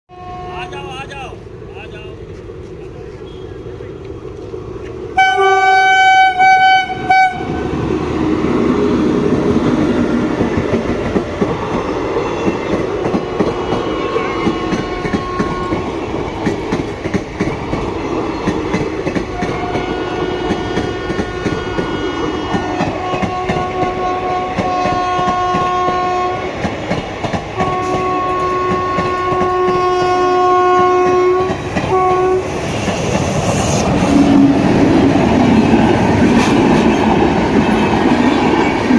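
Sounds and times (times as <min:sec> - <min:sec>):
locomotive horn blasts: 0:00.1 - 0:00.8, 0:05.1 - 0:07.6, 0:13.8 - 0:15.8, 0:19.3 - 0:26.5, 0:27.6 - 0:32.5
train wheels clattering over rails: 0:07.7 - 0:38.9.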